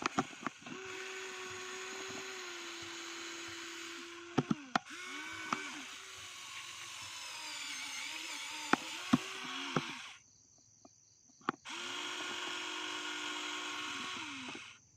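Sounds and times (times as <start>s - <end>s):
sharp clicks and knocks: 0.0s - 3.6s, 4.3s - 5.8s, 8.6s - 10.0s
toy truck motor whirring: 0.0s - 10.2s, 11.6s - 14.8s.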